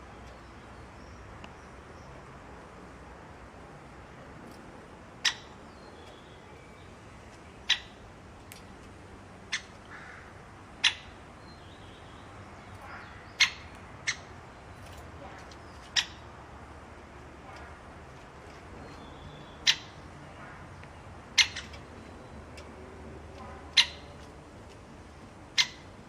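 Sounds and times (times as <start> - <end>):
bird chirping: 5.2 - 8.7, 10.8 - 26.0.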